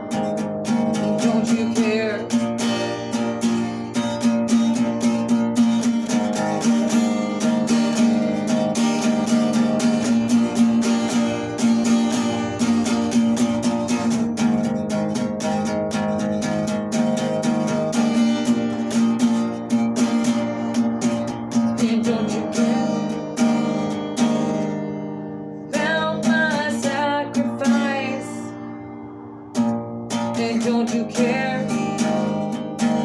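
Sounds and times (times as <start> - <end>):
acoustic guitar strumming: 0.0 - 33.0.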